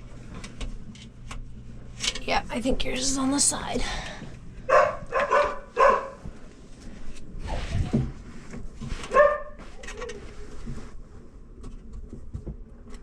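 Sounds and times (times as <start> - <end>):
rustling and handling noise: 0.0 - 13.0
dog barking: 4.7 - 6.2, 9.1 - 9.6.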